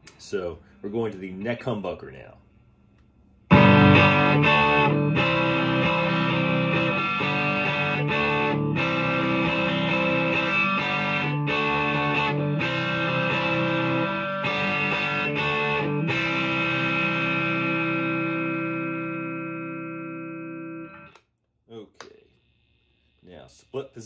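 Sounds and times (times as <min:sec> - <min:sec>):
overdriven electric guitar chords: 0:03.5 - 0:21.2.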